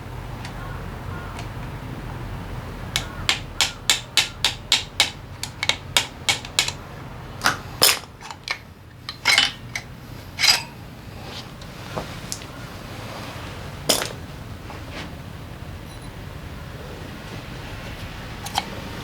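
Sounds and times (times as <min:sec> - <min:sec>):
metal parts knocking: 0:03.0 - 0:06.8, 0:07.4 - 0:10.8, 0:13.9 - 0:14.2
sharp metallic taps: 0:03.0 - 0:06.8.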